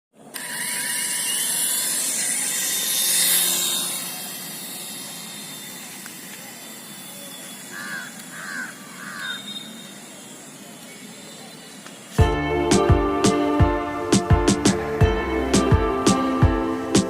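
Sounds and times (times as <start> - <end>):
high hissing motor whir: 0.2 - 14.2
short calls: 5.1 - 12.1.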